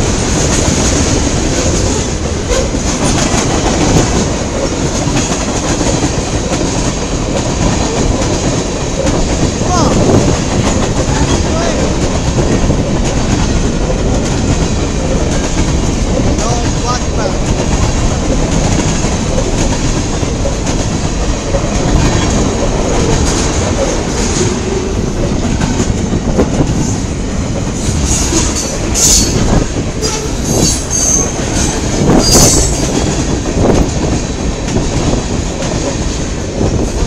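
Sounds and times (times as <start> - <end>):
freight train wheels rumbling: 0.0 - 37.0
high-pitched wheel squeals: 30.0 - 31.4, 32.2 - 32.8.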